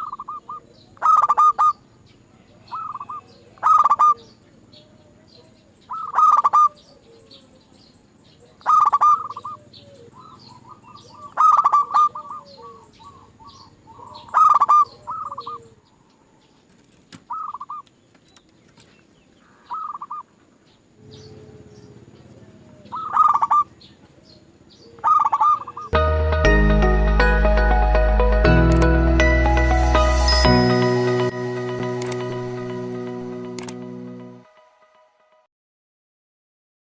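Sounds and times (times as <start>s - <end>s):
dove cooing: 0.0s - 1.8s, 2.6s - 7.7s, 8.4s - 16.0s, 21.0s - 26.0s
small birds chirping: 0.0s - 26.0s
music: 26.0s - 35.5s.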